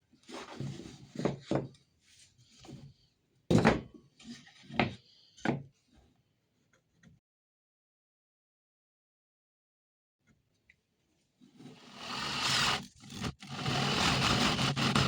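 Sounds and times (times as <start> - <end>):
wooden knocks and thunks: 3.5 - 3.9.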